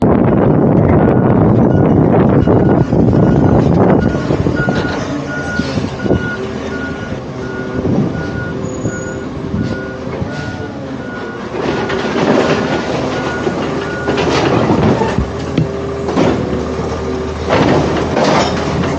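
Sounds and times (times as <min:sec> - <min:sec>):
garbage truck engine running: 0:00.0 - 0:18.9
reversing alarm beeping: 0:01.0 - 0:14.4.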